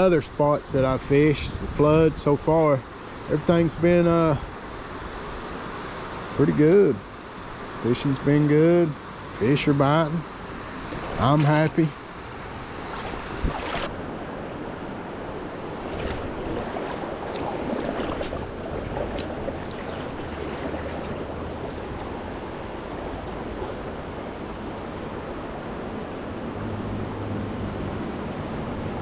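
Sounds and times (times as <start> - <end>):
river water rushing: 9.0 - 29.0.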